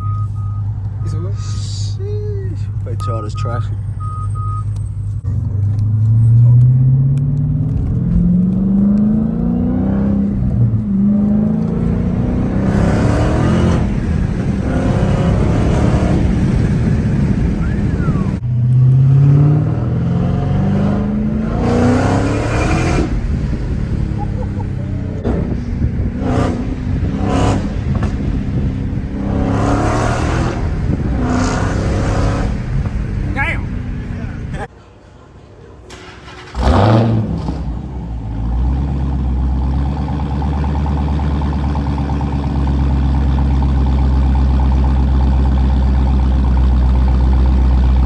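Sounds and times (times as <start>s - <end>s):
car exhaust accelerating: 3.8s - 34.7s, 36.3s - 48.0s.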